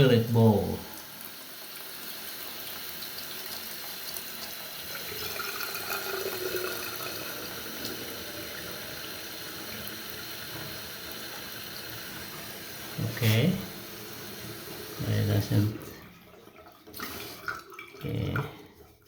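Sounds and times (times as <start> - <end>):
water filling toilet tank: 0.0 - 19.0.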